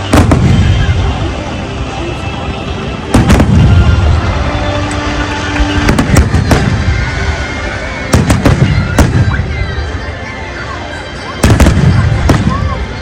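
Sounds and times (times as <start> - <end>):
low rumble of distant bangs: 0.1 - 1.2, 3.1 - 4.4, 8.1 - 9.6.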